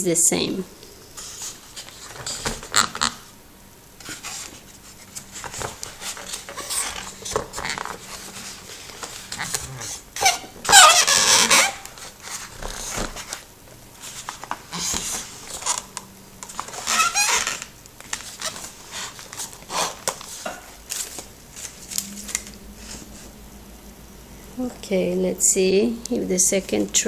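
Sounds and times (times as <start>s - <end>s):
egg carton rustling and scraping: 1.2s - 3.3s, 4.0s - 23.3s.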